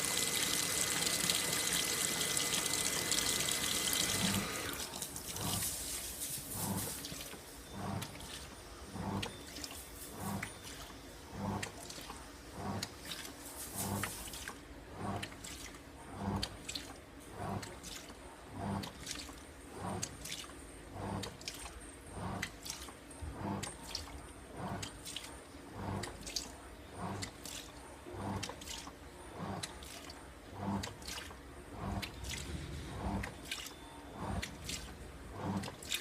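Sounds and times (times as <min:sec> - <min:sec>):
washing machine motor hum: 0:00.0 - 0:36.0
water sloshing: 0:29.6 - 0:36.0.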